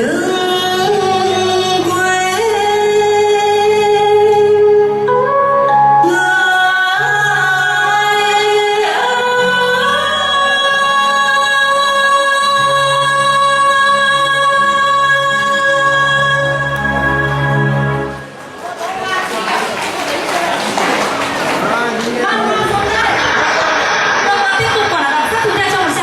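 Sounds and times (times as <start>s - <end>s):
woman singing: 0.0s - 5.1s, 6.0s - 17.8s.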